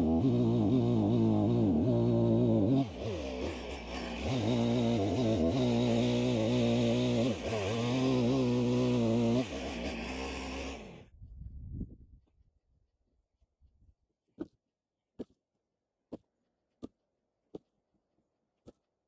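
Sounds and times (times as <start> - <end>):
chainsaw cutting logs: 0.0 - 11.2.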